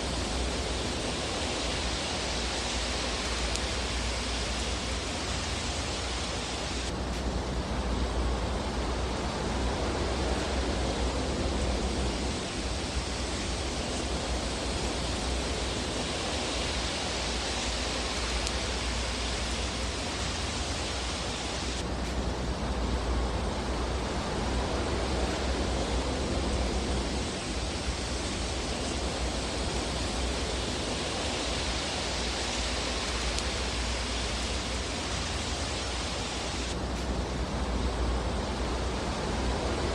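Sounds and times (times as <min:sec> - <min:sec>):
fireplace fire hissing: 0:00.0 - 0:39.9.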